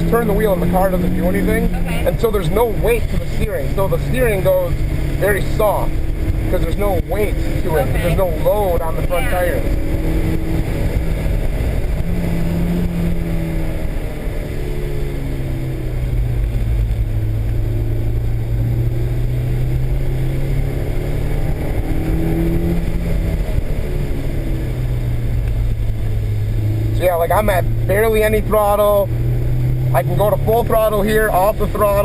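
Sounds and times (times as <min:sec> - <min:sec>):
car engine at part throttle: 0:00.0 - 0:32.0.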